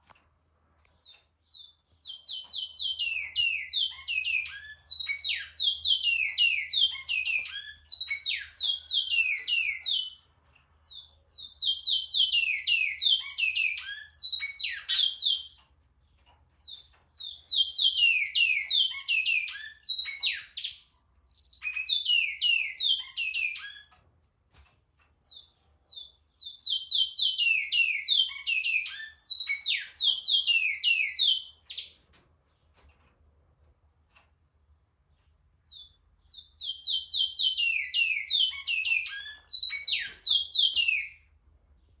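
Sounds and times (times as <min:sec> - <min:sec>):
bird singing rapid notes: 0:01.0 - 0:10.2, 0:16.6 - 0:24.0, 0:25.2 - 0:32.0, 0:35.6 - 0:41.2.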